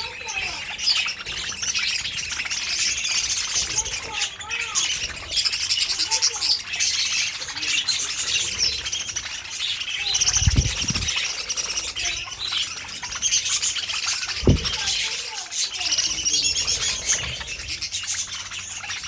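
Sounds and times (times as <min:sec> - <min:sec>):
budgerigars chirping and warbling: 0:00.0 - 0:19.0
short low thumps: 0:14.4 - 0:14.9.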